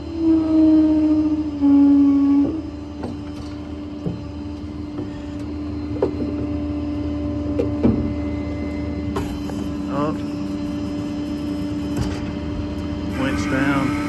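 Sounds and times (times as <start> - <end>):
hydraulic pump whine: 0.0 - 14.0
hydraulic knocks and clicks: 2.4 - 6.6, 7.5 - 8.2.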